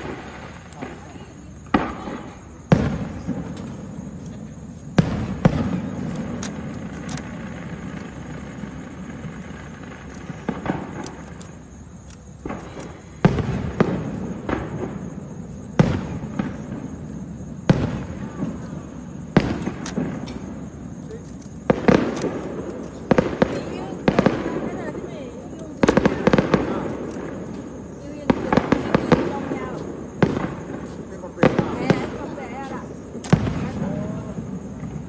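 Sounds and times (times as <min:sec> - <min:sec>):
fireworks crackles: 0:04.6 - 0:15.0, 0:19.4 - 0:32.6, 0:33.2 - 0:34.0
fireworks bangs: 0:17.7 - 0:32.5, 0:33.2 - 0:35.0.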